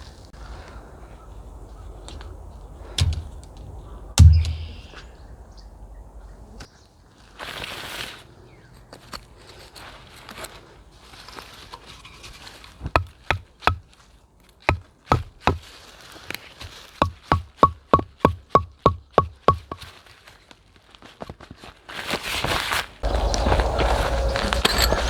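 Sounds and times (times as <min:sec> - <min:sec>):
sharp metallic knocking strikes: 0:04.2 - 0:04.8, 0:17.0 - 0:19.8.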